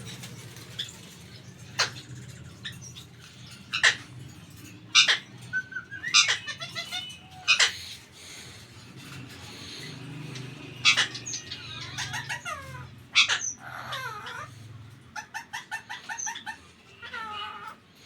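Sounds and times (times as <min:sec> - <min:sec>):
parakeet calling: 0:00.0 - 0:18.0.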